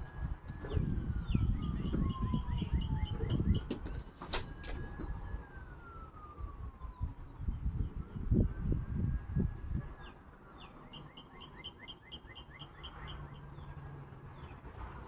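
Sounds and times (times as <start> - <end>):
low rumbling thumps: 0.0 - 4.0
songbird singing: 0.0 - 5.6, 9.8 - 14.8.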